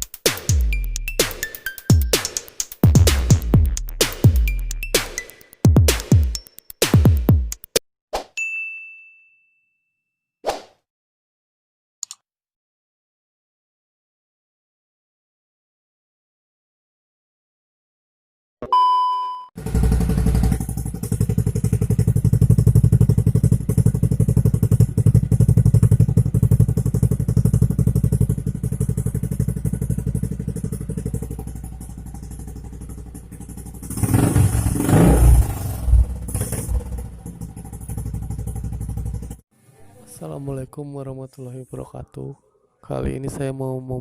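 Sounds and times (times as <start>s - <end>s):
motorcycle engine idling and revving: 0.0s - 7.8s, 19.6s - 39.5s.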